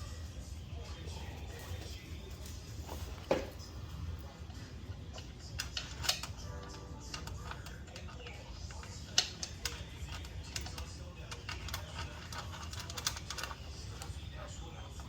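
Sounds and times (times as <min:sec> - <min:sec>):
hand tools clicking and clinking: 0:05.1 - 0:15.0.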